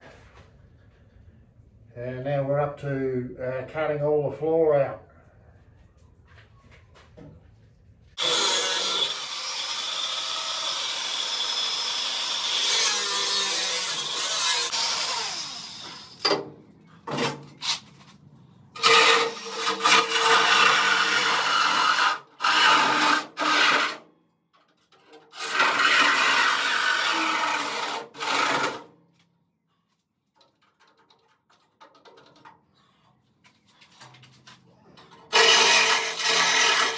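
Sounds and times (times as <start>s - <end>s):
power tool cutting sheet steel: 8.2s - 16.3s, 18.8s - 24.0s, 25.3s - 28.8s, 35.3s - 36.9s.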